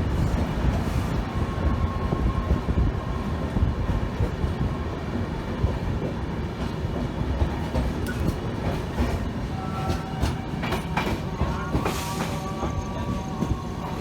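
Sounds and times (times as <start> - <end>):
train rumbling along track: 0.0 - 14.0
wheels clicking over rail joints: 6.0 - 12.8.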